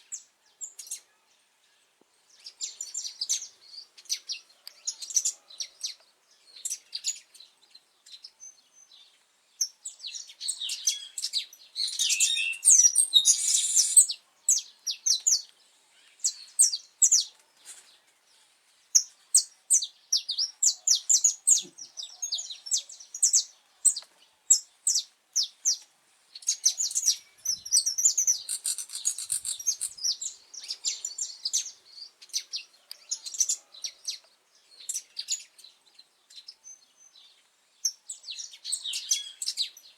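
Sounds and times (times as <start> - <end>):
finch singing high chirps: 9.6 - 15.5, 26.4 - 35.7.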